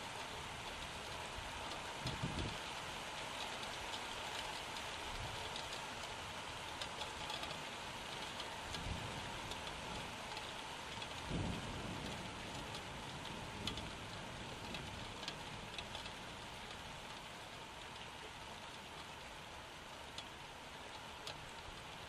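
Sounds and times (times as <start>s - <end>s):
raindrops ticking: 0.0s - 22.0s
steady rain hiss: 0.0s - 22.0s.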